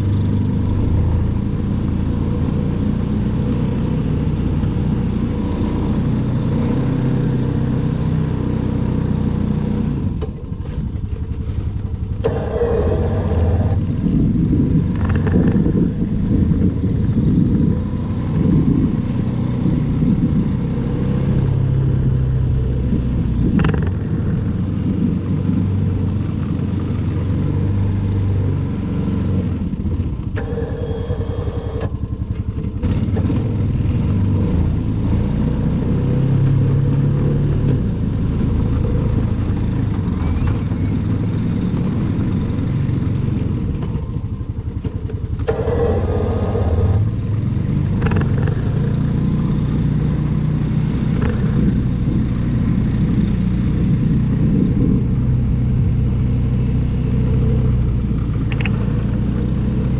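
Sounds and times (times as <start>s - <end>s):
engine running: 0.0s - 59.9s
short scraping noises: 12.2s - 13.9s, 30.4s - 32.0s, 45.5s - 47.2s.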